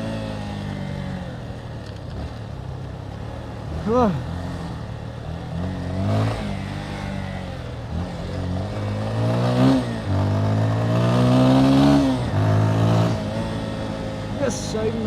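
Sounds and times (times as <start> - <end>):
motorcycle engine changing gears: 5.4 - 15.0.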